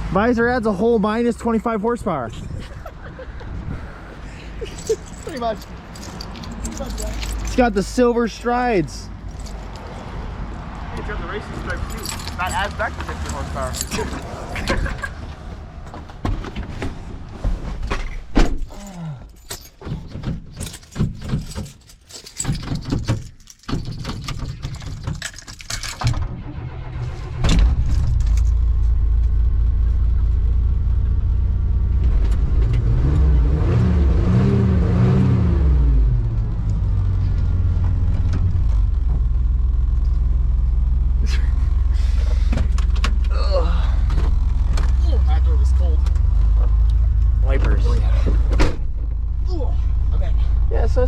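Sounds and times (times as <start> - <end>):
keys jangling and clicking: 4.6 - 7.8, 9.2 - 10.0, 11.7 - 15.1, 18.7 - 26.1
truck engine starting and idling: 25.2 - 51.0.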